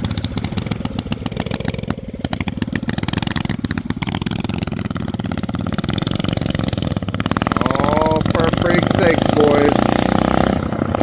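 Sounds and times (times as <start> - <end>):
mini bike engine running: 0.0 - 11.0
person speaking: 7.5 - 9.8.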